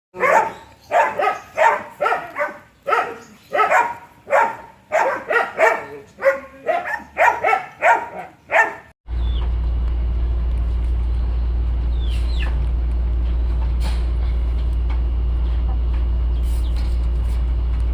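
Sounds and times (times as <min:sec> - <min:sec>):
steady low hum: 0:09.1 - 0:17.9.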